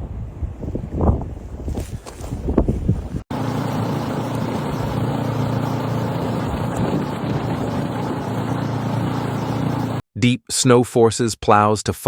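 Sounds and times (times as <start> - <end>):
vehicle engine running: 3.3 - 10.0.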